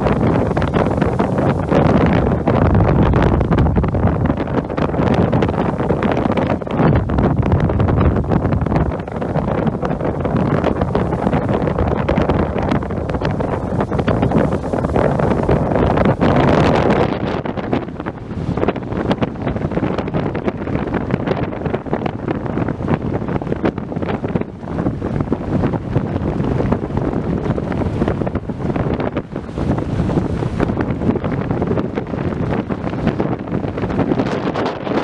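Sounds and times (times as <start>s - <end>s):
strong wind buffeting microphone: 0.0s - 35.0s.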